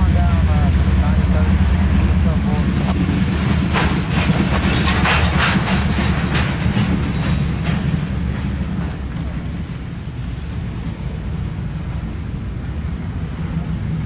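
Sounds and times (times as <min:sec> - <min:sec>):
freight train rumble: 0:00.0 - 0:14.0
wheel clicks over rail joints: 0:02.8 - 0:09.3.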